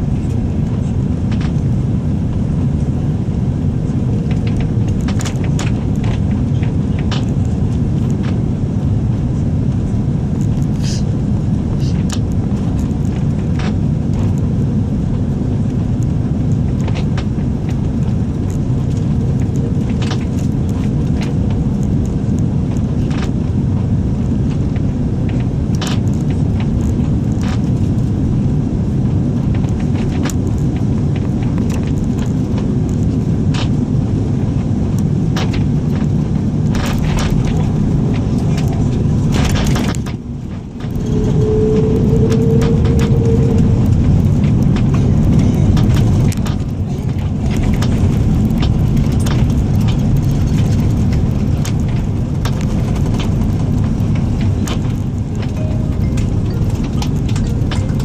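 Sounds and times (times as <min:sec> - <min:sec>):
airliner cabin rumble: 0:00.0 - 0:58.0
steady hum: 0:35.8 - 0:58.0.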